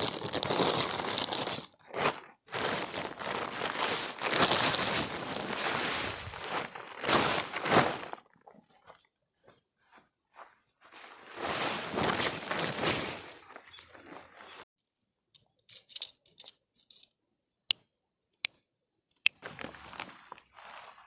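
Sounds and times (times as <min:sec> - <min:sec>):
loud rustling and crinkling: 0:00.0 - 0:08.3, 0:10.9 - 0:14.6.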